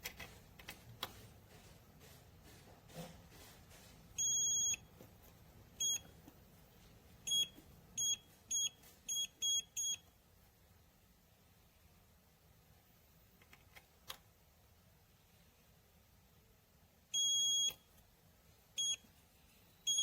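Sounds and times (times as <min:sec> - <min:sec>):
electronic safe beeping: 0:04.2 - 0:05.0, 0:05.8 - 0:06.2, 0:07.2 - 0:10.1, 0:17.2 - 0:17.9, 0:18.8 - 0:19.1.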